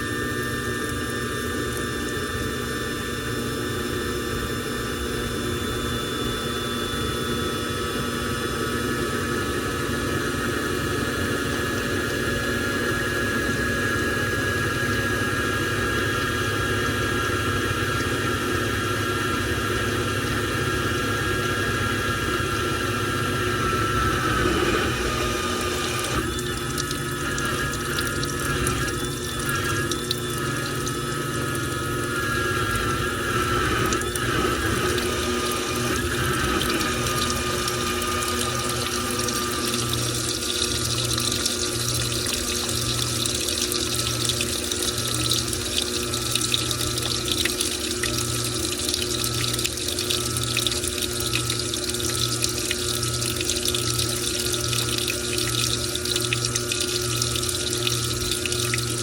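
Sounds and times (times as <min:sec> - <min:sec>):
low intermittent hum: 0:10.9 - 0:59.0
wavering whine: 0:21.2 - 0:43.1
water rushing into washing machine drum: 0:22.5 - 0:59.0.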